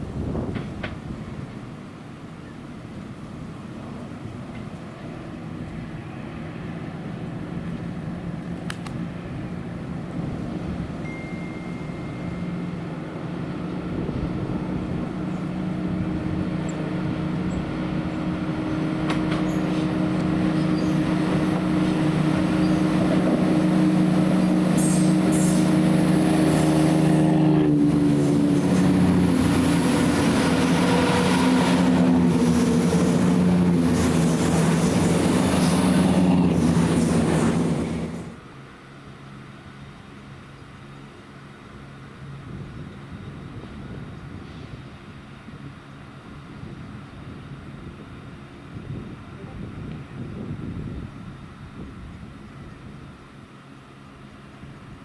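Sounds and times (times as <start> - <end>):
passenger train passing: 0.0 - 50.5.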